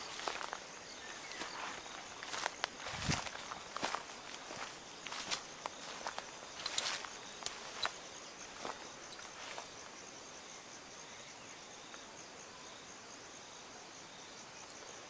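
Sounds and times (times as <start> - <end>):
footsteps through dry vegetation: 0.0 - 9.9
insect trilling: 0.0 - 9.9.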